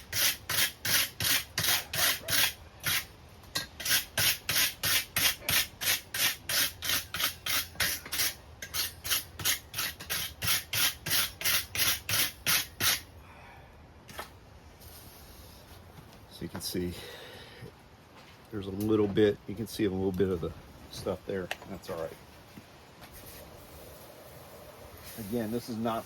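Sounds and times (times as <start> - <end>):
hand tool scraping steel: 0.0 - 13.1.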